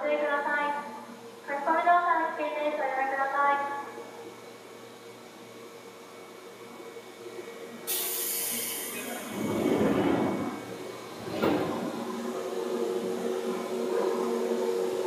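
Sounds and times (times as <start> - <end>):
train equipment hum: 4.0 - 15.0
compressed air hiss: 7.9 - 9.4
train rumble: 8.4 - 15.0.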